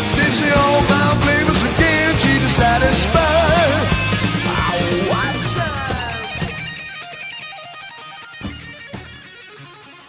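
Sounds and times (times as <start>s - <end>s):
guitar music: 0.0s - 10.0s
ticking beat: 0.0s - 10.0s
sharp hit: 0.3s - 7.2s.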